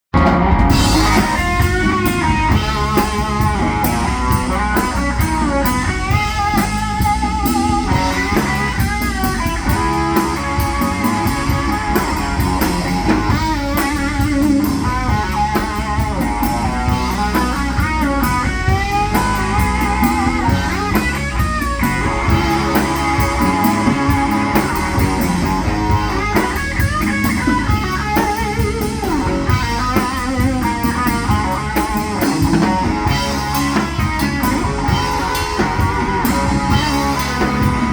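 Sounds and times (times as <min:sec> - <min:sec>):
electric guitars: 0:00.0 - 0:37.9
drum kit: 0:00.1 - 0:37.9.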